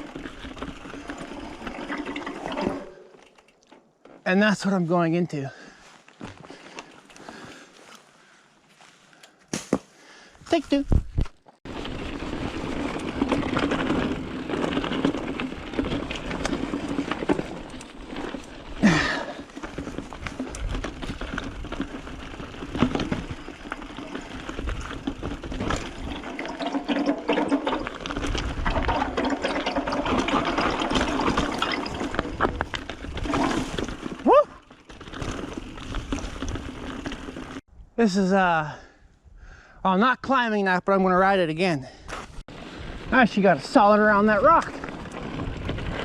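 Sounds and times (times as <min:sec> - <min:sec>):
bike rattling and knocking: 0:00.0 - 0:04.3, 0:11.0 - 0:37.6, 0:43.7 - 0:46.0
bike tyres rolling on dirt: 0:00.0 - 0:09.3, 0:10.0 - 0:37.7, 0:41.0 - 0:46.0.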